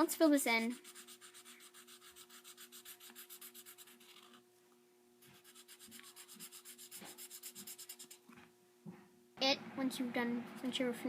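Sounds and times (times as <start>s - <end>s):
marker scribbling on paper: 0.6s - 4.4s, 5.3s - 8.2s.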